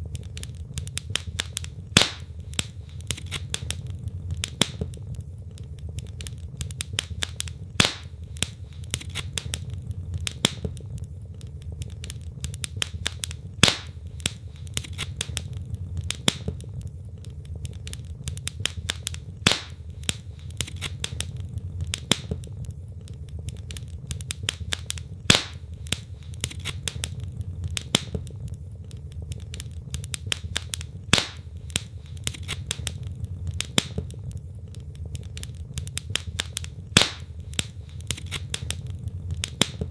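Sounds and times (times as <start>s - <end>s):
fire crackling and snapping: 0.0s - 39.9s
low rumble of flames: 0.0s - 39.9s
loud fire pop: 1.0s - 5.0s, 6.8s - 10.8s, 12.7s - 16.7s, 18.6s - 22.5s, 24.4s - 27.2s, 30.2s - 34.2s, 36.2s - 38.8s.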